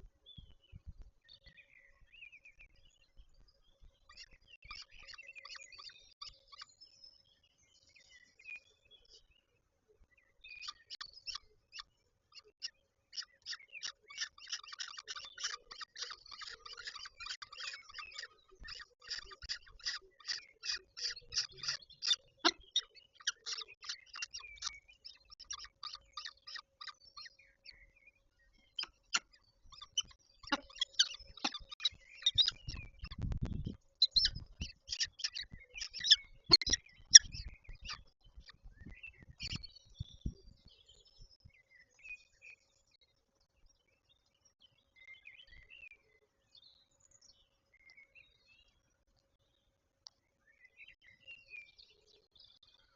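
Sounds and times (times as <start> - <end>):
falcons calling: 29.9 - 32.8.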